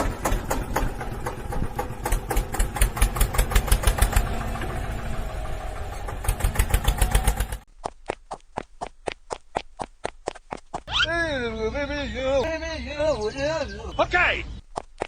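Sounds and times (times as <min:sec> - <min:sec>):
tractor engine chugging: 0:00.0 - 0:07.7.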